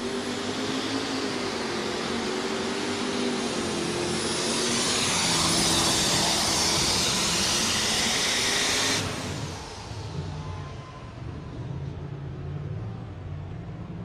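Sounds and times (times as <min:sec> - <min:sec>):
high whine: 0:01.2 - 0:11.9.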